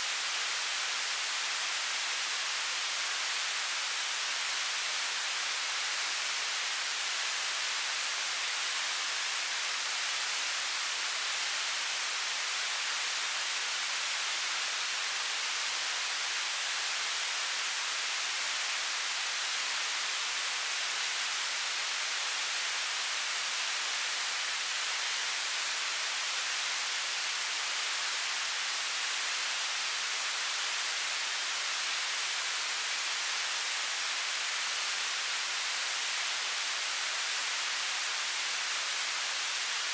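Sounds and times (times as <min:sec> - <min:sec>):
television static hiss: 0:00.0 - 0:39.9.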